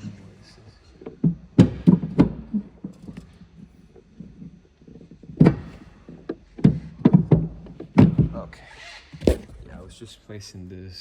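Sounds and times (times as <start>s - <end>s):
loud knock: 9.2s - 9.8s.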